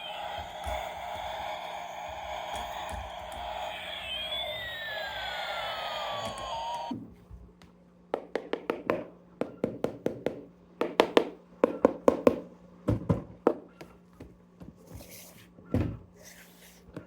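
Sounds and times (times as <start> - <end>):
falling electronic siren tone: 0.0 - 6.9.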